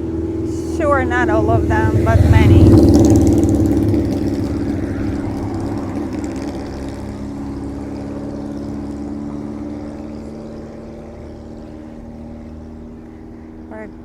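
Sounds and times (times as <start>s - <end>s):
engine droning: 0.0s - 14.0s.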